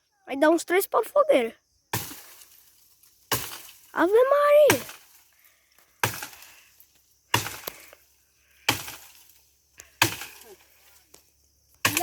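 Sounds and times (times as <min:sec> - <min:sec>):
axe chopping log: 0:03.3 - 0:03.8, 0:06.0 - 0:06.4, 0:07.3 - 0:07.8, 0:08.6 - 0:09.2, 0:09.9 - 0:10.5.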